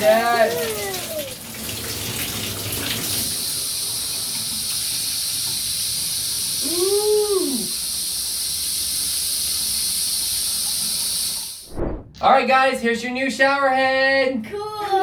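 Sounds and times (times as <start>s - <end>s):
shower head spraying water: 0.0s - 11.7s.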